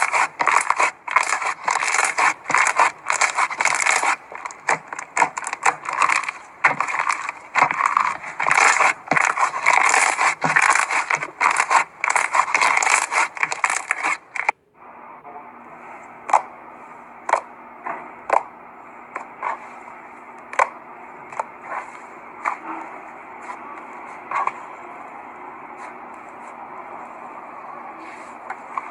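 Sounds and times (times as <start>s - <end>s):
slime crackling and scraping: 0.0s - 14.5s, 20.5s - 24.7s
steady low hum: 0.0s - 28.9s.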